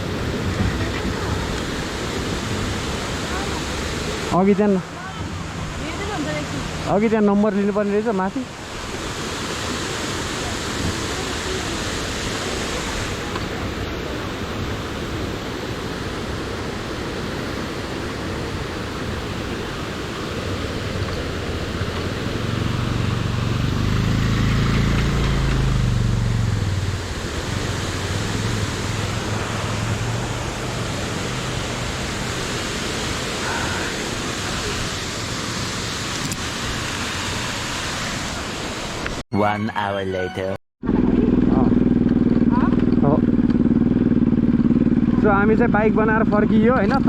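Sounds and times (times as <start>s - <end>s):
steady rushing noise: 0.0s - 39.2s
low engine drone: 21.9s - 32.5s, 40.8s - 47.0s.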